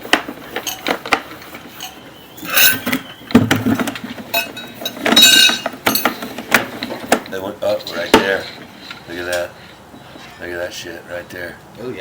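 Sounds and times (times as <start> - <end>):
metal rattling clatters: 0.4 - 7.4
metallic clinks and clicks: 4.3 - 6.3.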